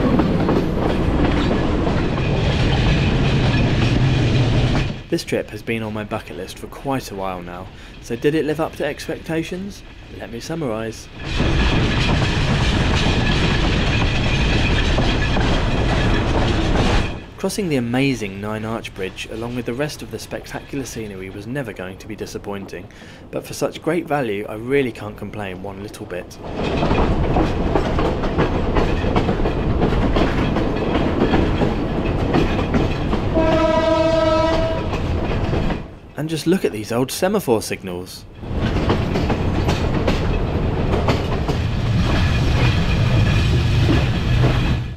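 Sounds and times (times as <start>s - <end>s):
train wheels rumbling and rattling: 0.0s - 44.9s
train horn long note: 33.3s - 35.0s.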